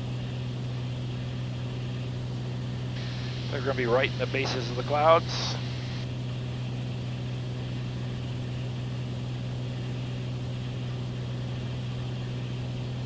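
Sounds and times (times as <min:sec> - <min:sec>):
propeller plane engine droning: 0:00.0 - 0:13.0
constant hiss: 0:03.0 - 0:06.0.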